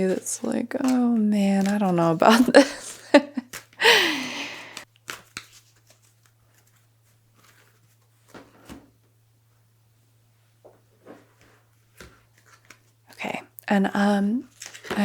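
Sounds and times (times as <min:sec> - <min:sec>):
cards clicking and rustling: 0:00.0 - 0:03.8, 0:04.7 - 0:08.8, 0:11.3 - 0:13.0, 0:14.5 - 0:15.0.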